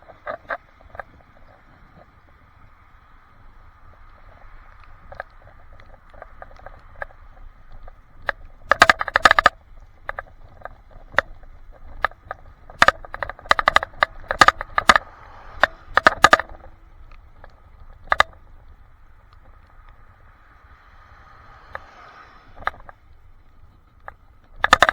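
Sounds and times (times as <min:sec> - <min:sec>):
sharp rattling clicks: 0:04.8 - 0:20.0, 0:24.0 - 0:24.9.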